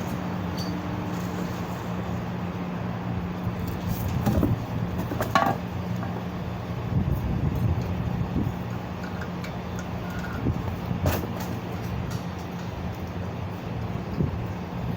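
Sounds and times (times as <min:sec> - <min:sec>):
low mechanical motor hum: 0:00.0 - 0:14.9.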